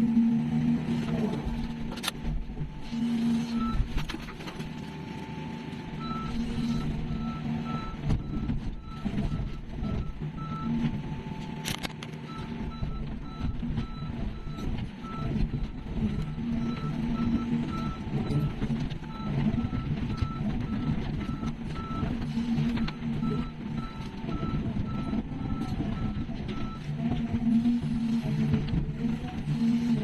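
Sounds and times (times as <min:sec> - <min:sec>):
diesel engine running: 0:00.0 - 0:30.0
back-up alarm beeping: 0:06.0 - 0:11.5, 0:12.3 - 0:28.5.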